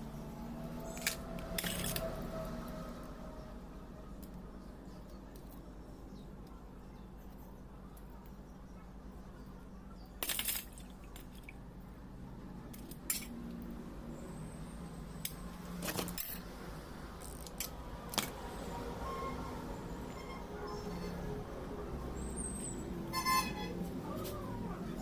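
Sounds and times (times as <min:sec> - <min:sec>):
metal parts and tools clinking: 0:00.9 - 0:02.2, 0:10.2 - 0:11.5, 0:12.7 - 0:13.4, 0:15.8 - 0:16.5.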